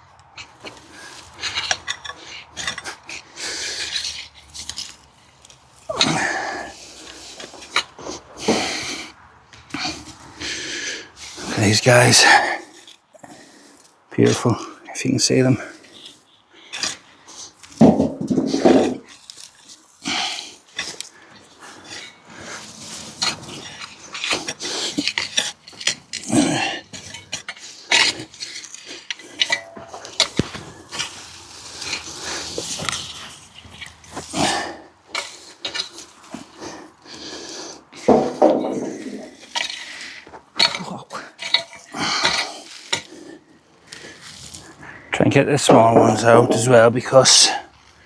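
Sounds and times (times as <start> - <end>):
scraping in soil: 0.4 - 14.3, 15.3 - 37.9, 38.8 - 48.0
heavy breath: 5.9 - 11.6, 12.2 - 14.0, 20.0 - 45.2
potatoes knocking in wheelbarrow: 17.8 - 19.1, 45.6 - 46.8.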